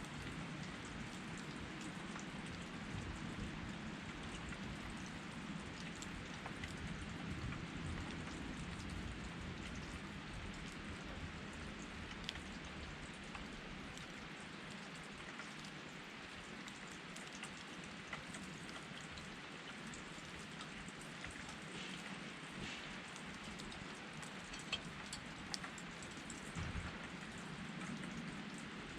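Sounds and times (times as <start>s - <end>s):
campfire crackling and popping: 22.7s - 27.0s.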